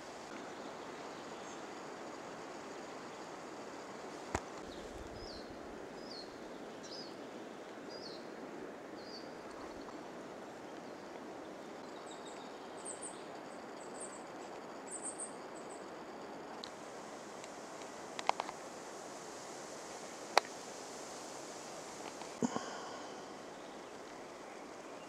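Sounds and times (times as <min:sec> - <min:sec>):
steady outdoor hiss: 0:00.0 - 0:25.0.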